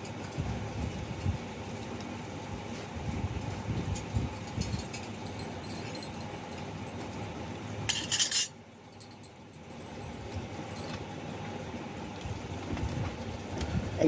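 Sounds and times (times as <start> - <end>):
kitchen utensils clattering: 7.9 - 9.2.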